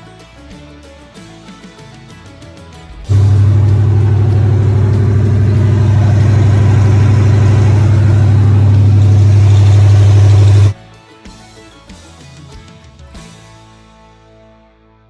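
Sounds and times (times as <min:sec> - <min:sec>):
vehicle engine running: 0:03.1 - 0:10.8.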